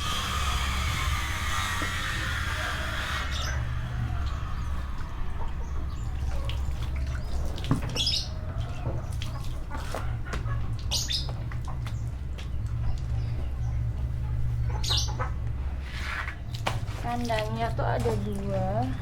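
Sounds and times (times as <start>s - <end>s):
knocks and rubbing of cage washing: 0.0s - 19.0s
steady low hum: 0.0s - 19.0s.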